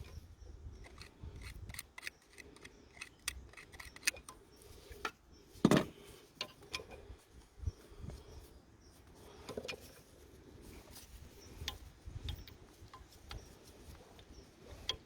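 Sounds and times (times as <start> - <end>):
metallic clicks of hand tools: 0.8 - 4.4.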